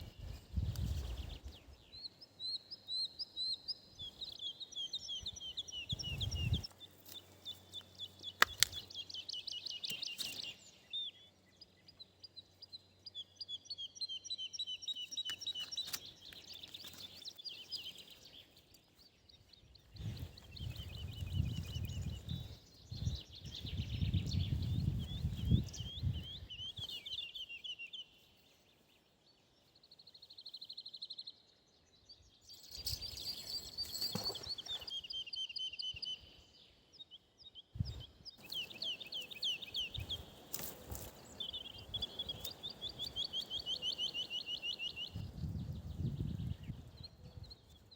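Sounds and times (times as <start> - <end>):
songbirds singing: 0.0 - 47.9
sharp clicks: 8.4 - 8.9.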